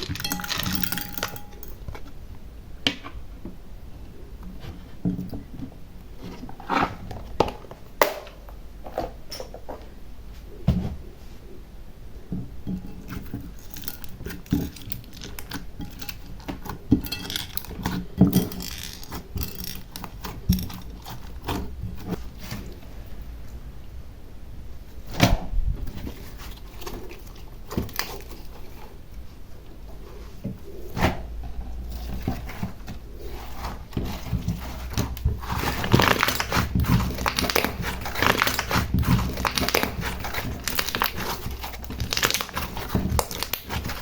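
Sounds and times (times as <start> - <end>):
small hard trinkets clattering: 0.0 - 1.8, 18.3 - 20.0.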